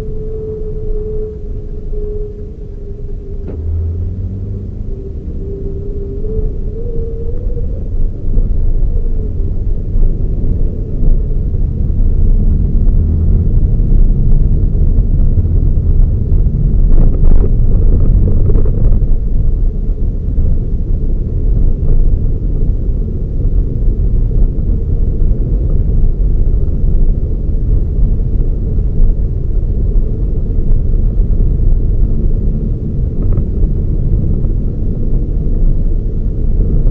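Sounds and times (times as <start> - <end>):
car engine and road noise rumble: 0.0 - 36.9.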